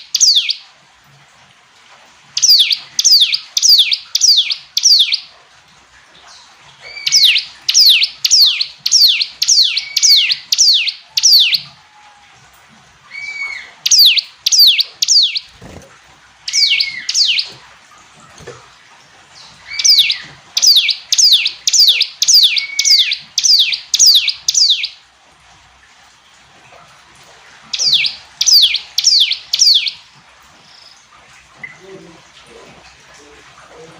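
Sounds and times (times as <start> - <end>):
bird singing high downward notes: 0.0 - 0.6, 2.4 - 5.3, 6.8 - 11.8, 13.1 - 15.8, 16.5 - 17.6, 19.4 - 25.0, 27.7 - 30.0.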